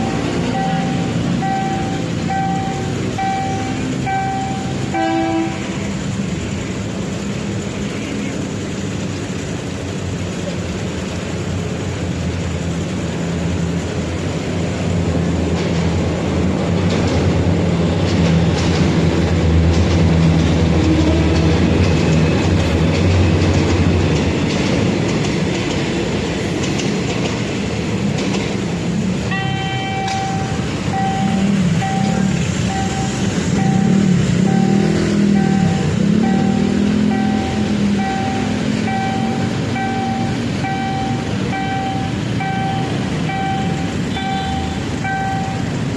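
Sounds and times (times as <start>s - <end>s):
train engine drone: 0.0s - 45.9s
wheels clicking over rails: 8.4s - 45.9s
repeating pulsed tone: 29.3s - 45.7s.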